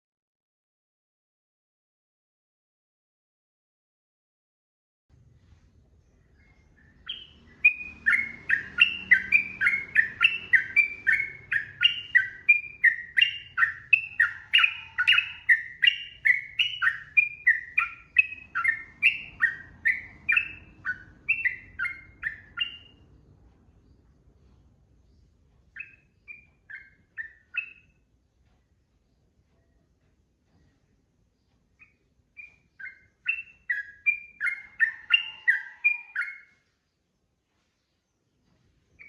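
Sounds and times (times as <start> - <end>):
bird singing whistled notes: 6.3 - 23.0, 25.7 - 28.0, 31.8 - 36.6.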